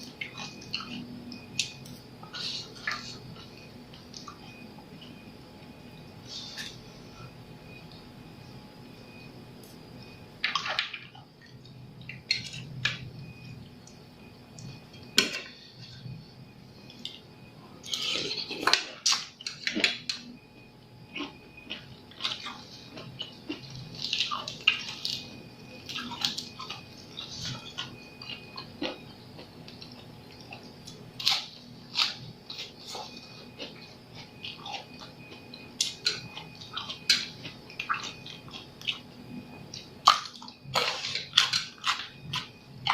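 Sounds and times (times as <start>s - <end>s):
wet chewing: 21.1s - 42.9s.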